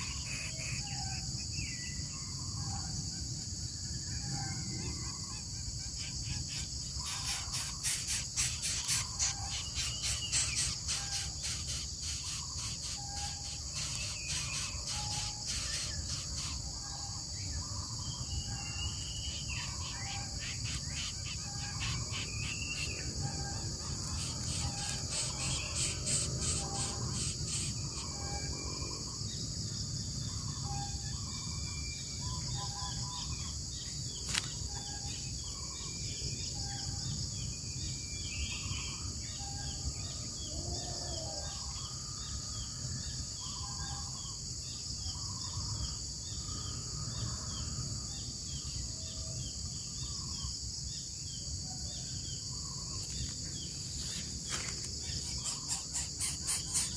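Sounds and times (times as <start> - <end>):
insect drone: 0.0 - 56.9
fast pulsing insect burst: 55.1 - 56.9.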